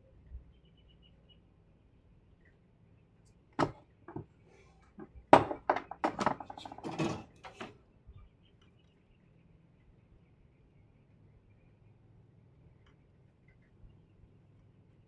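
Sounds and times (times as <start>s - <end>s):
parts clattering: 3.6s - 4.3s, 4.9s - 7.7s
tools knocking and clicking: 3.6s - 4.3s, 5.0s - 7.7s.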